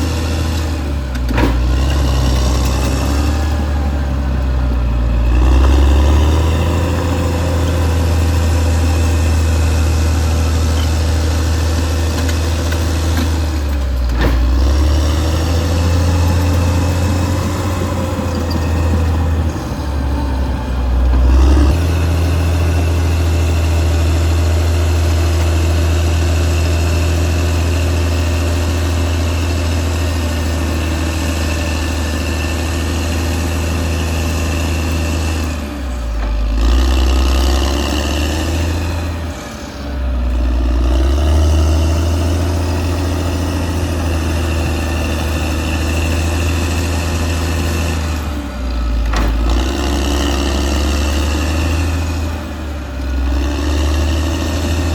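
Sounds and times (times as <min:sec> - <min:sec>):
bulldozer diesel engine: 0:00.0 - 0:54.9.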